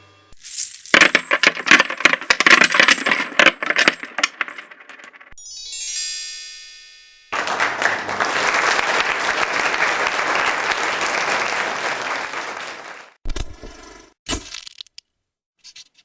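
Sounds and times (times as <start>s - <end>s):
crowd applause: 7.4s - 13.2s.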